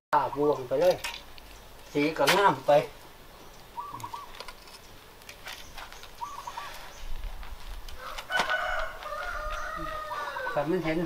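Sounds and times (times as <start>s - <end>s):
bird call: 3.8s - 4.5s, 5.6s - 7.1s.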